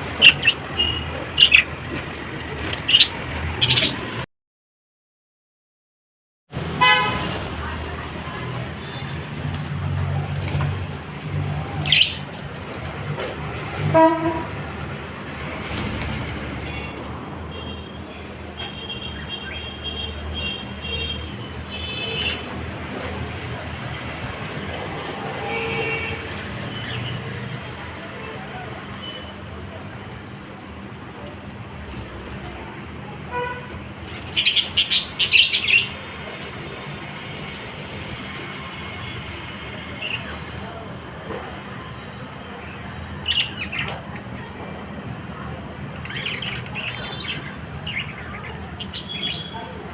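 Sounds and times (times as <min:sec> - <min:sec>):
lovebirds chirping: 0:00.0 - 0:01.8, 0:02.5 - 0:04.2, 0:11.6 - 0:12.3, 0:34.2 - 0:36.0, 0:42.6 - 0:44.2, 0:45.6 - 0:49.8
low traffic rumble: 0:00.0 - 0:04.3, 0:06.5 - 0:49.9
vehicle horn toot: 0:06.6 - 0:07.4, 0:13.9 - 0:14.6.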